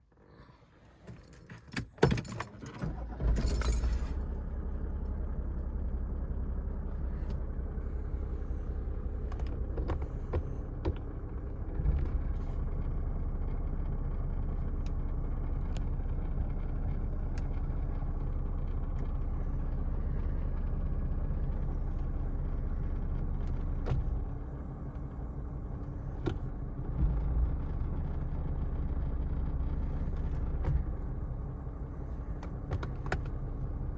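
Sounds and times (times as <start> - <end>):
car engine idling: 0.0 - 33.9
keys jangling: 3.4 - 4.2.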